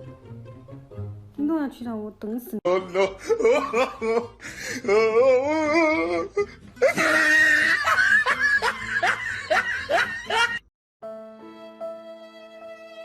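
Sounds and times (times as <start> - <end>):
soft music with held notes: 0.0 - 1.6, 11.0 - 13.0
person laughing: 2.7 - 10.6.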